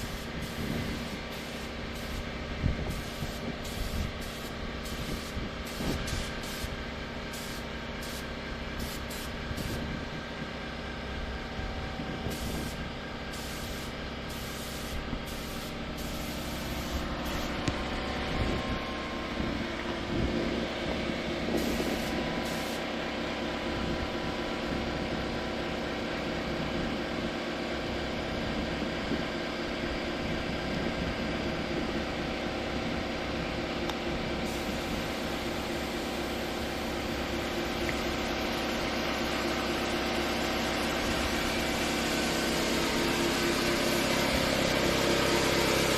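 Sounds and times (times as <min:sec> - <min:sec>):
spray gun hissing: 0:00.0 - 0:09.9, 0:12.3 - 0:17.6, 0:21.6 - 0:22.9, 0:34.4 - 0:45.9
steady machine hum: 0:00.0 - 0:45.9.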